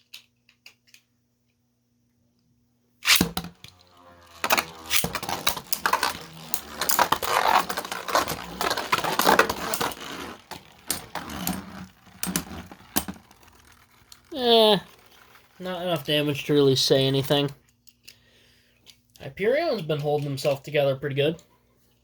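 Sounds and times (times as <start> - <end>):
spinning tops launching crack: 3.0 - 14.3
spinning tops clacking and scraping: 3.0 - 17.5.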